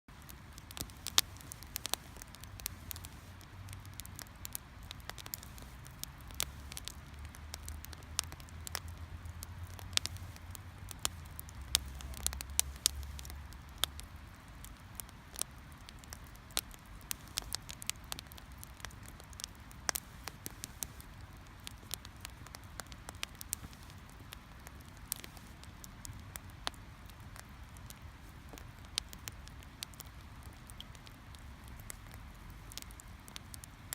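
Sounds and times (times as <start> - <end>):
wood fire crackling: 0.1 - 33.9.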